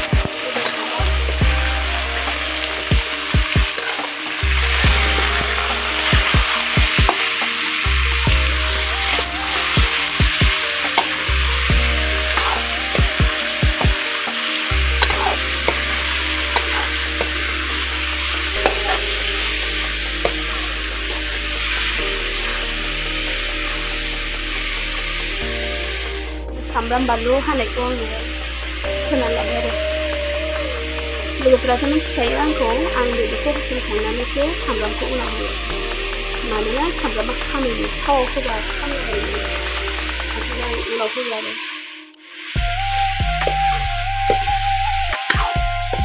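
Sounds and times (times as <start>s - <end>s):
meat sizzling in a pan: 0.0s - 46.0s
metal ladle scraping a pan: 0.2s - 29.8s.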